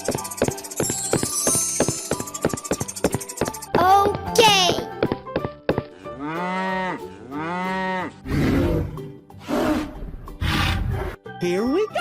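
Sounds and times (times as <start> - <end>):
cow mooing: 6.2 - 8.7.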